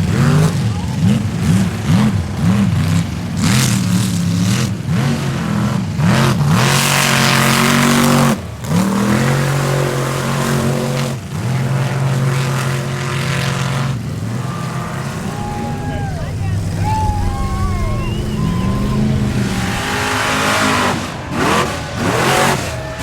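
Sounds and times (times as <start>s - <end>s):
truck engine revving: 0.0s - 23.0s
loud rushing hiss: 15.0s - 22.1s.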